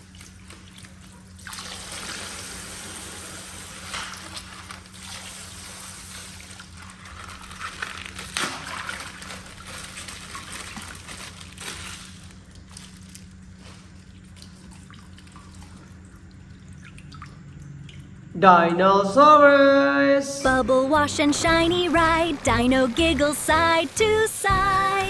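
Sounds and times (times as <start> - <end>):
water trickling from plastic bag: 0.0 - 18.3.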